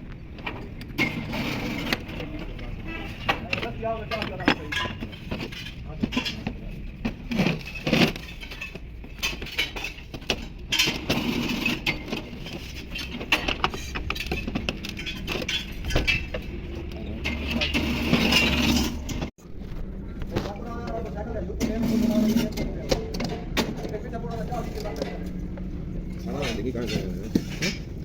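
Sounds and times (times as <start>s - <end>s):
metal tools clinking and knocking: 0.4s - 19.3s, 26.1s - 28.0s
low steady rumble: 12.2s - 28.0s.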